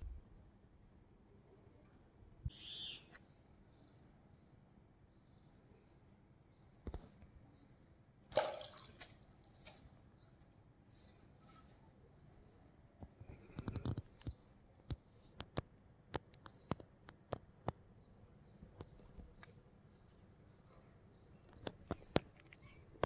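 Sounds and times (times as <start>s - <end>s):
small bird chirping: 2.5s - 7.9s, 9.4s - 15.4s, 16.1s - 23.0s.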